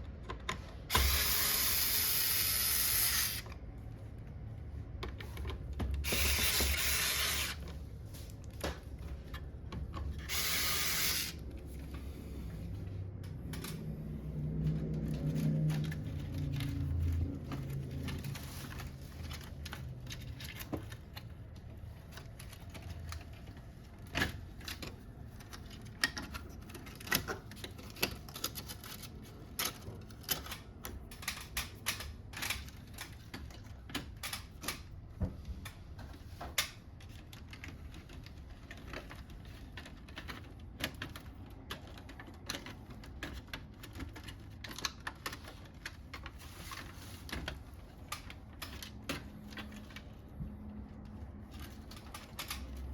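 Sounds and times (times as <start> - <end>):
plastic parts clicking and tapping: 14.9 - 52.9.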